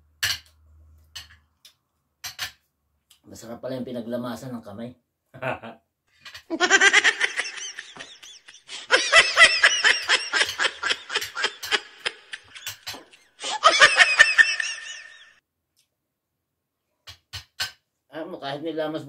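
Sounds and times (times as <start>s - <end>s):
high-pitched giggling: 6.5s - 15.3s
people talking: 18.2s - 19.0s.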